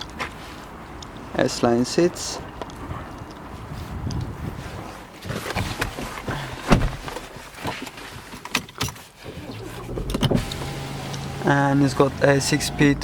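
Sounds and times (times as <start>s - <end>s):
clicks and knocks in car cabin: 5.2s - 11.2s.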